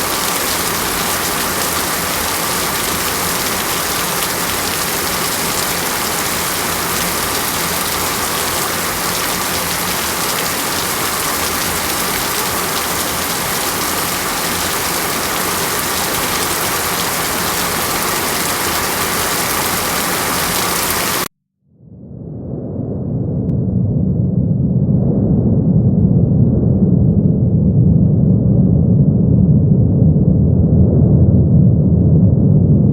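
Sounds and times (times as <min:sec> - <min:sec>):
heavy rain: 0:00.0 - 0:21.3.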